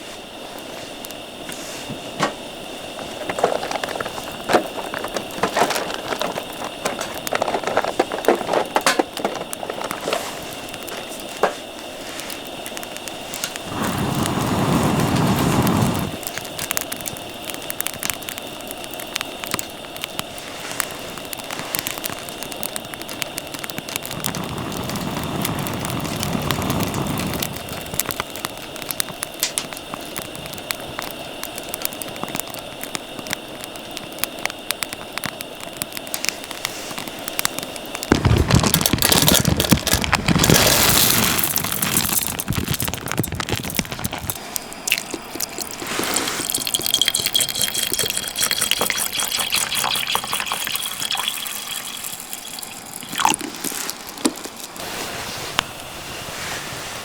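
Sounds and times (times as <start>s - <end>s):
wood fire crackling: 0.0s - 57.0s
food sizzling in a pan: 7.6s - 29.2s, 38.0s - 56.6s.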